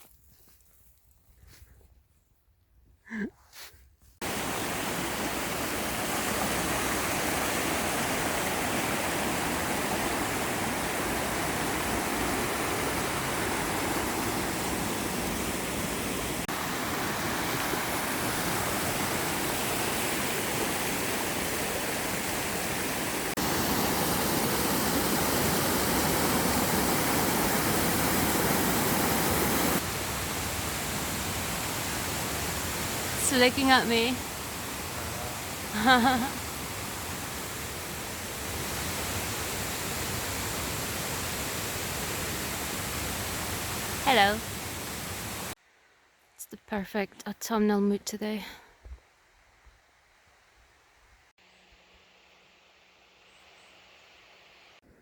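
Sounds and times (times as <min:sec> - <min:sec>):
fast-flowing water rushing: 0:04.2 - 0:45.6.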